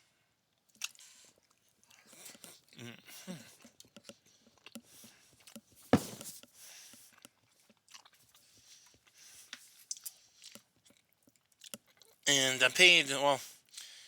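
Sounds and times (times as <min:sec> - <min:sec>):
person chewing food: 0:00.7 - 0:06.3, 0:07.0 - 0:12.2
loud sharp knock: 0:06.0 - 0:06.3.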